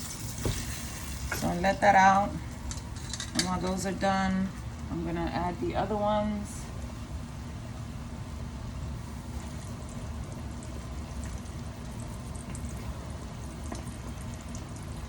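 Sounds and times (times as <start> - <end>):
chicken frying in hot oil: 0.0 - 1.4, 9.0 - 15.0.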